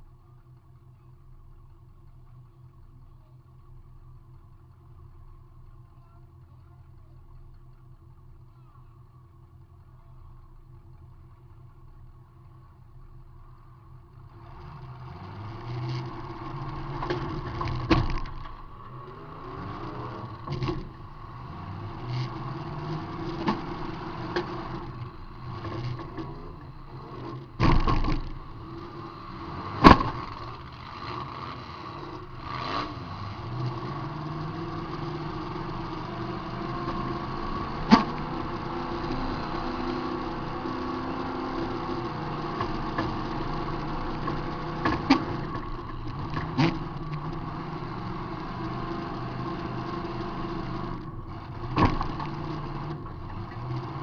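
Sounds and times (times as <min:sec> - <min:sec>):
car engine revving: 0:11.6 - 0:54.0.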